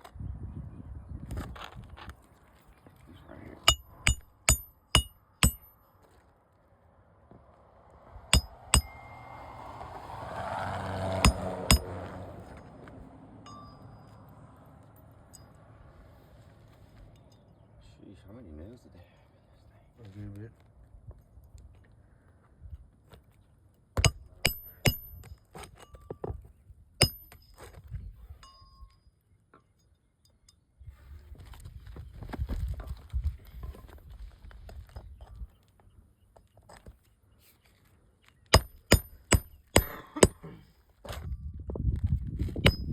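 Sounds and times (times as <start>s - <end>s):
hammer striking metal: 3.7s - 5.8s, 8.3s - 9.6s, 11.1s - 12.1s, 24.0s - 25.3s, 27.0s - 27.4s, 38.6s - 40.5s, 42.6s - 42.9s.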